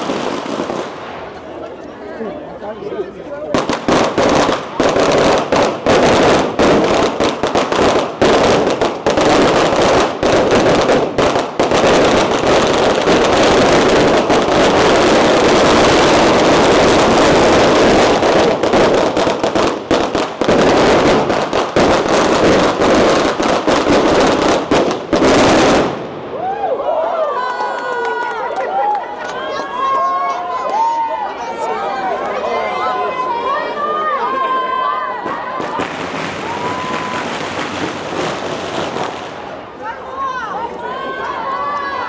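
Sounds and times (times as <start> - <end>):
firecrackers cracking and popping: 0.0 - 1.6, 3.5 - 26.4, 35.2 - 39.7.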